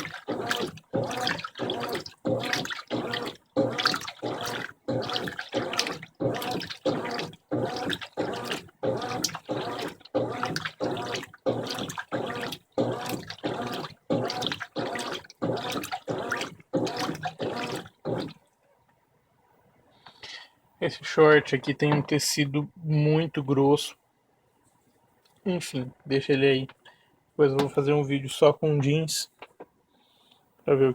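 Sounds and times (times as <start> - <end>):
washing machine swishing water: 0.0 - 18.4.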